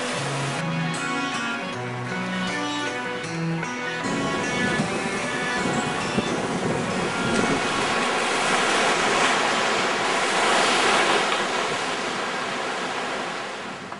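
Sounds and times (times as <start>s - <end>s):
sea surf breaking on beach: 0.0s - 0.6s, 4.0s - 13.9s.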